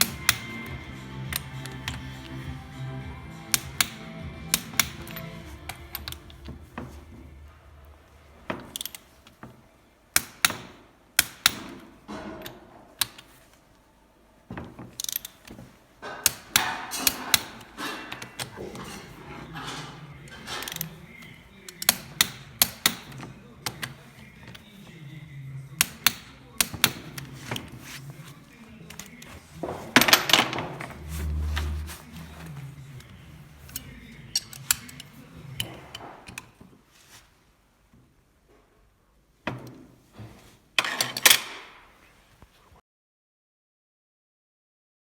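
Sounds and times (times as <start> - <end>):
metallic clicks of hand tools: 0.0 - 6.6, 8.6 - 9.1, 10.2 - 13.3, 15.0 - 24.6, 25.8 - 27.7, 33.0 - 36.5.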